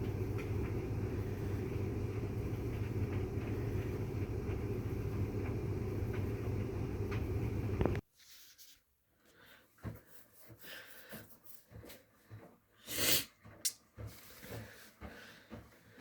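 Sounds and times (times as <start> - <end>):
dryer and washing machine humming: 0.0 - 8.0, 13.4 - 16.0.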